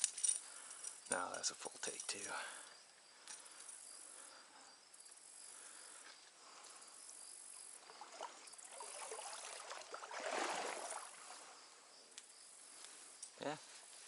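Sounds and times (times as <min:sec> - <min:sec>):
crickets chirping: 0:00.0 - 0:14.0
water splashing: 0:07.8 - 0:11.5.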